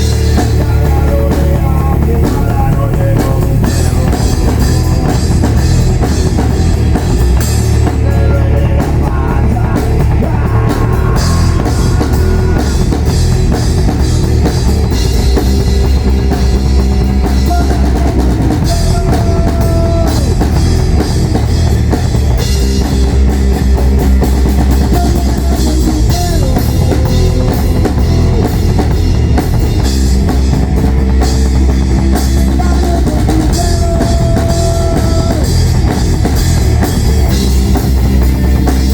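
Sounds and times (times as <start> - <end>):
heavy bass drum: 0.0 - 38.9
rock band playing: 0.0 - 38.9.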